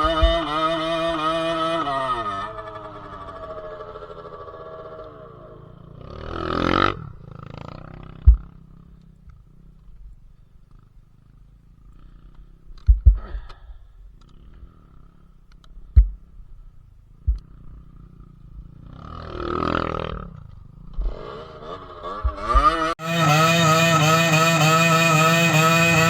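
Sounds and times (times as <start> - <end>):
quiet low engine knocks: 0.0 - 0.8, 8.0 - 10.8, 12.3 - 14.6, 15.5 - 16.6, 17.2 - 18.7
motorcycle engine revving: 0.0 - 26.0.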